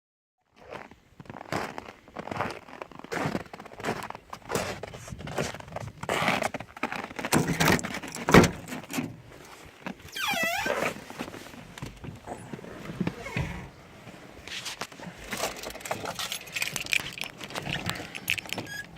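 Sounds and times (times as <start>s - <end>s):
wavering creak: 10.1s - 11.0s, 12.9s - 13.8s, 16.1s - 18.9s
car door shutting: 12.9s - 13.7s.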